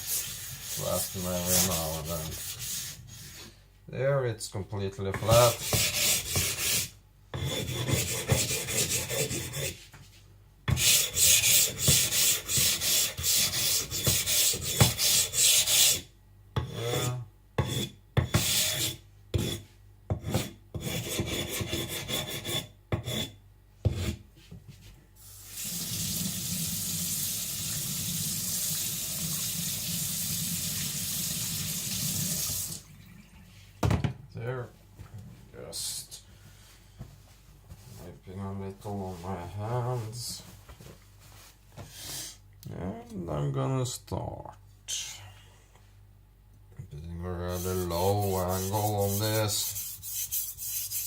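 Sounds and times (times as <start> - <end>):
plate rubbing on whetstone: 0.0 - 3.4, 16.7 - 19.6, 47.6 - 51.0
tap water running: 25.4 - 33.5.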